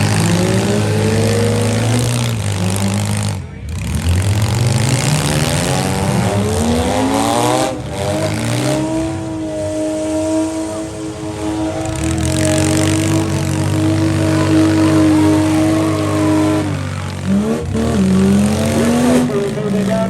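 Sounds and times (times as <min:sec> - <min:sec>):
car engine revving hard: 0:00.0 - 0:20.0.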